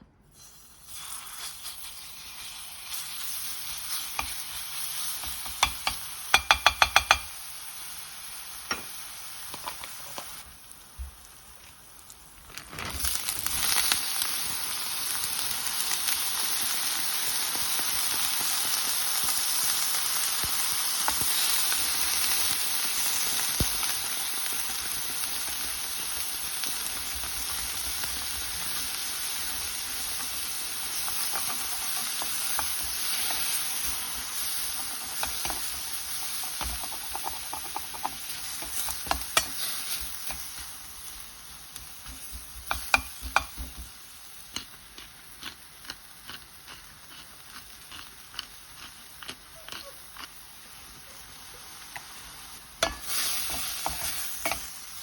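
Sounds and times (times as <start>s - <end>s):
food sizzling in a pan: 0.3s - 55.0s.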